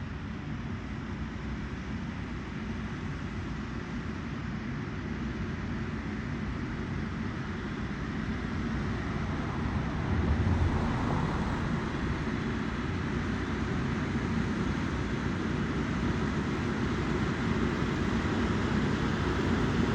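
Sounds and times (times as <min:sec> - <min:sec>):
harvesting machine engine rumbling: 0:08.5 - 0:13.7.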